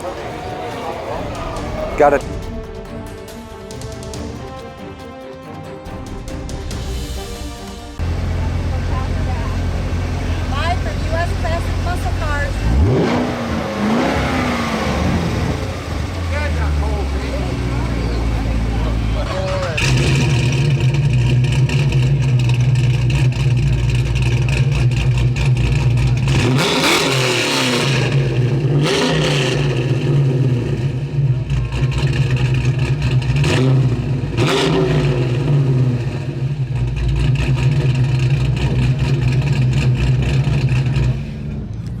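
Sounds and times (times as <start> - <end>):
car engine idling and revving: 0.0 - 42.0.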